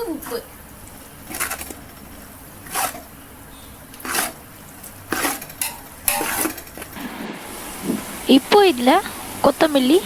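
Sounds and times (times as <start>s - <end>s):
metal spoon scraping cooking pot: 0.2s - 8.1s.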